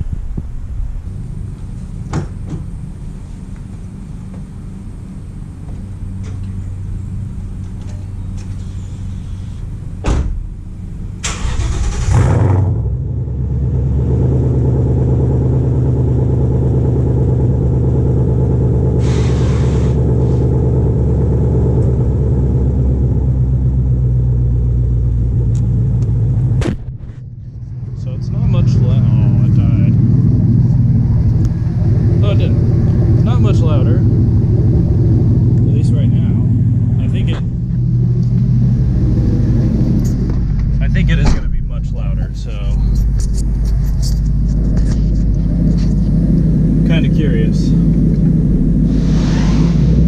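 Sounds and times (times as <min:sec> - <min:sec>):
car engine starting and idling: 0:00.0 - 0:50.0.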